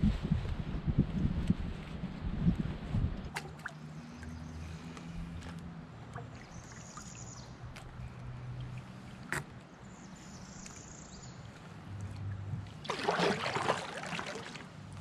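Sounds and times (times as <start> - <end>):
water trickling and dripping: 3.3 - 9.7
paddle strokes in water: 11.6 - 15.0.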